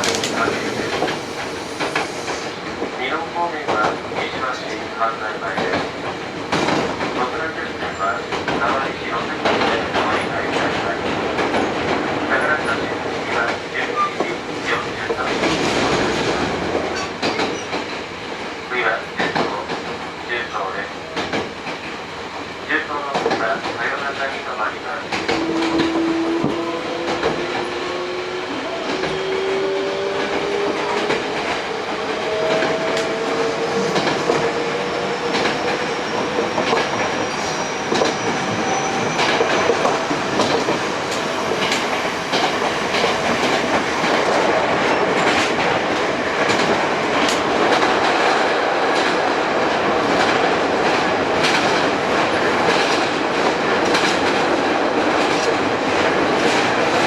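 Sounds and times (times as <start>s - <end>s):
wheels clacking over rail joints: 33.9s - 57.0s.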